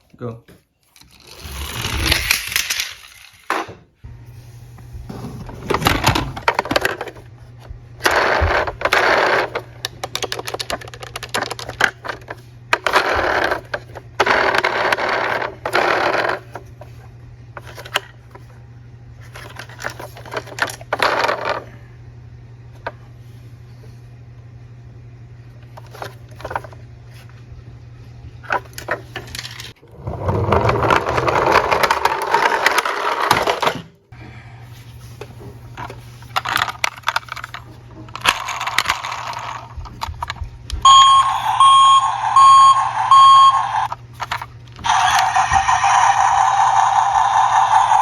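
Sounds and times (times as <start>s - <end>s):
toy cars clicking and rattling: 1.0s - 3.6s, 8.0s - 16.4s, 36.3s - 40.3s, 43.8s - 48.0s
short electronic beeps: 40.9s - 43.9s
warbling electronic siren tone: 40.9s - 43.9s, 44.9s - 48.0s.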